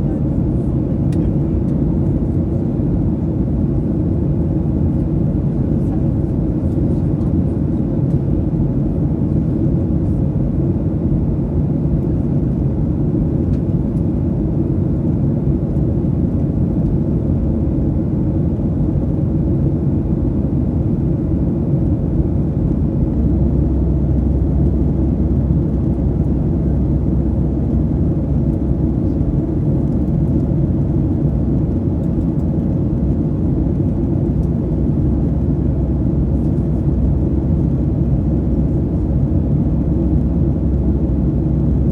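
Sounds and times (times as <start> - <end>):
vehicle rumbling in motion: 22.6 - 30.4.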